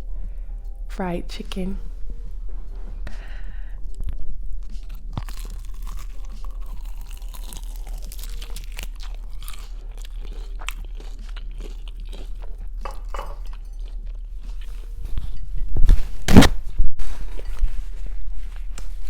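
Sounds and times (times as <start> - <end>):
chewing crispy fried chicken: 3.9 - 15.1.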